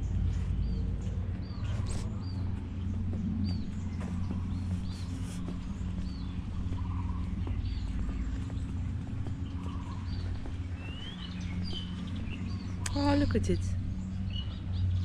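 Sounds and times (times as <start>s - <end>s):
bird chirping: 0.0s - 15.0s
steady low hum: 0.0s - 15.0s.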